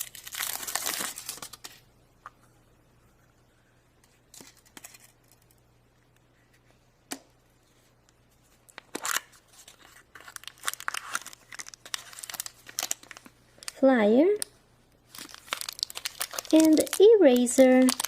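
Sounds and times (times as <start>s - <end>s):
wrapper tearing and crinkling: 0.0s - 1.8s, 8.8s - 13.8s, 15.1s - 18.0s.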